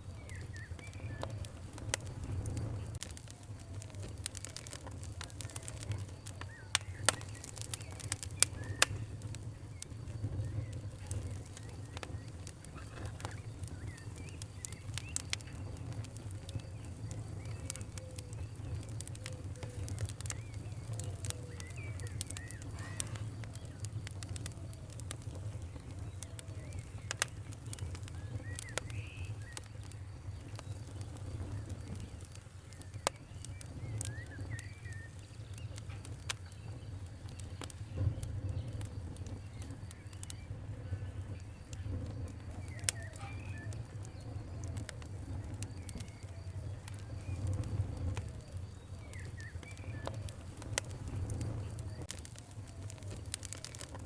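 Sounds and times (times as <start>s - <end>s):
sharp pops and snaps: 0.0s - 54.0s
wood fire crackling: 0.0s - 54.0s.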